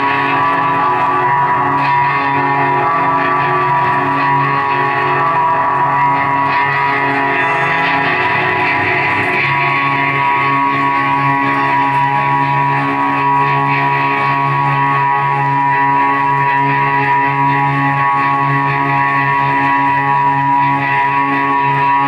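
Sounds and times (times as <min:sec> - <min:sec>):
band playing droning passage: 0:04.9 - 0:13.0.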